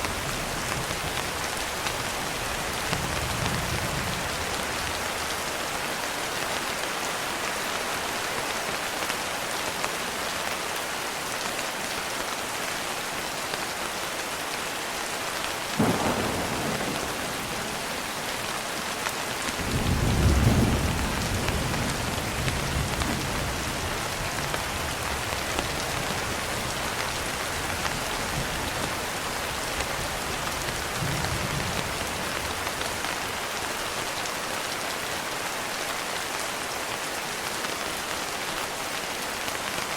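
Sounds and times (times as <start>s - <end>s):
steady rain: 0.0s - 39.9s
thunder crack: 15.8s - 18.4s
deep thunder rumble: 15.8s - 18.6s, 19.6s - 23.7s.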